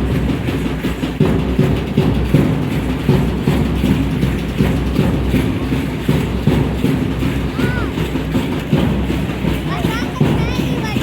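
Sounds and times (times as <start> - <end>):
drum strokes: 0.0 - 11.0.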